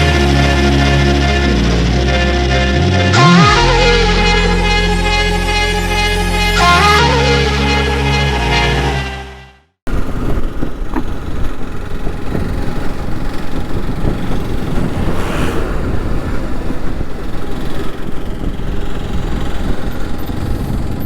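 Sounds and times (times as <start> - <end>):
motorcycle engine rumble: 9.9 - 21.0
wind rushing: 13.2 - 19.8.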